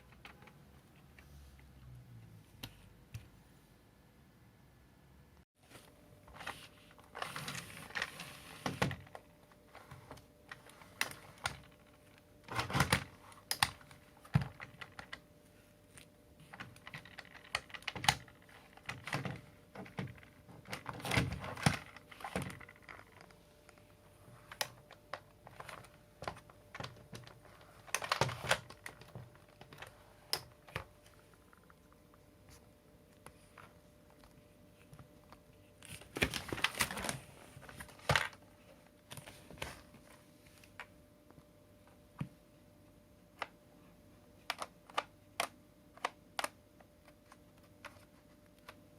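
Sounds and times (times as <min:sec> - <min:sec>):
plastic parts clicking and rattling: 0:06.3 - 0:15.2, 0:15.9 - 0:32.0.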